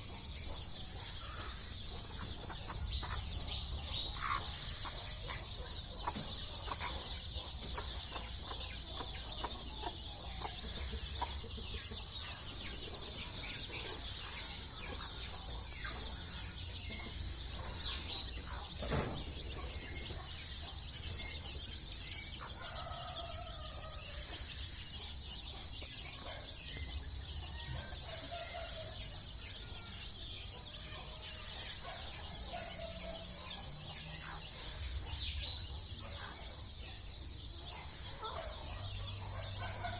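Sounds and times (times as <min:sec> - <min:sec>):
chickens clucking: 0:00.0 - 0:29.6
high-pitched insect chorus: 0:00.0 - 0:39.9.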